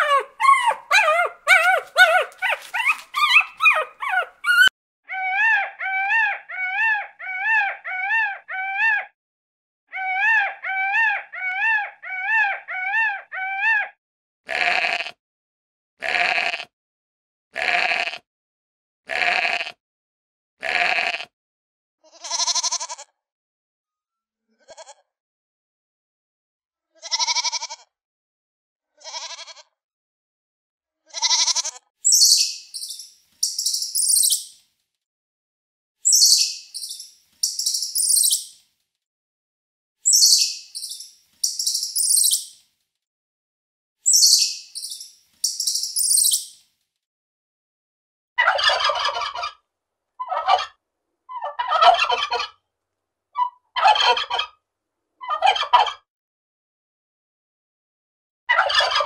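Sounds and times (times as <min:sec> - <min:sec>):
squirrel chattering: 0:00.0 - 0:04.7, 0:36.1 - 0:38.4
turkey gobbling: 0:00.0 - 0:04.7, 0:48.4 - 0:49.6, 0:50.2 - 0:50.7, 0:51.4 - 0:52.5, 0:53.8 - 0:54.5, 0:58.7 - 0:59.0
goat bleating: 0:14.5 - 0:15.2, 0:16.0 - 0:16.7, 0:17.6 - 0:18.2, 0:19.1 - 0:19.8, 0:20.6 - 0:21.3, 0:22.1 - 0:23.1, 0:24.6 - 0:25.0, 0:27.0 - 0:27.9, 0:29.0 - 0:29.7, 0:31.1 - 0:31.8.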